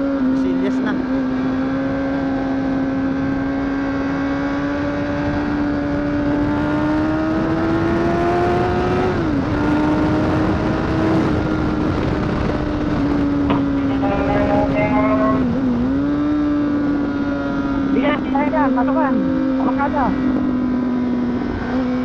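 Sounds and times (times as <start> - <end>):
motorcycle engine under throttle: 0.0 - 22.0
wind rush: 1.6 - 18.5.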